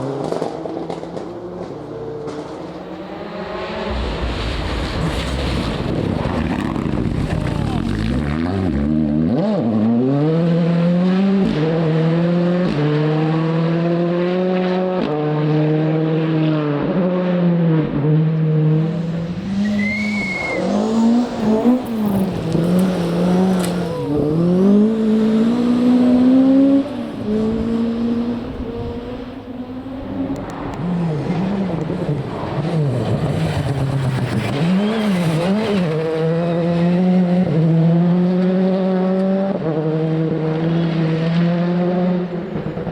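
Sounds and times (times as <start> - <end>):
rally car engine revving: 0.0 - 42.9
high squeal: 19.4 - 22.0, 34.7 - 35.4.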